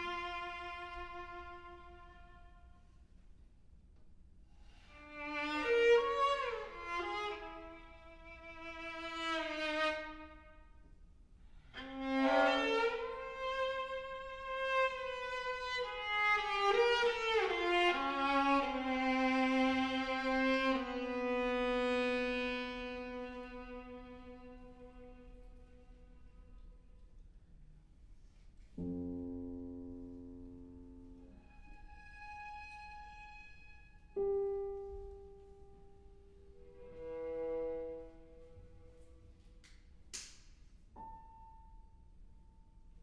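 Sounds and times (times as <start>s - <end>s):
solo viola playing: 0.0s - 2.8s, 5.0s - 10.7s, 11.8s - 26.6s, 36.5s - 39.1s.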